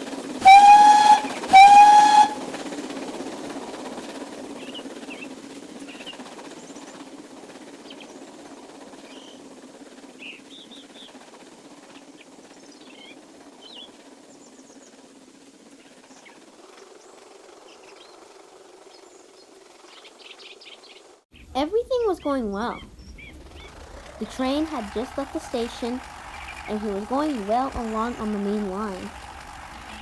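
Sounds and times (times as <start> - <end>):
train rumble: 0.0 - 20.2, 21.6 - 30.0
small birds chirping: 22.2 - 29.2.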